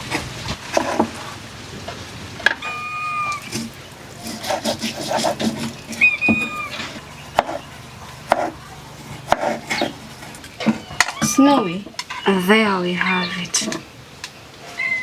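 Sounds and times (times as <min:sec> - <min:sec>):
animal call: 0:02.5 - 0:13.8, 0:14.6 - 0:15.0.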